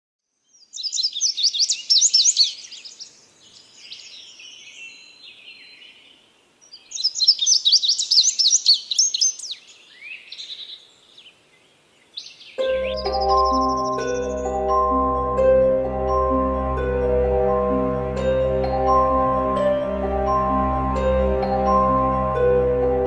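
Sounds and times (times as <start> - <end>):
songbird twittering: 0.5 - 15.1.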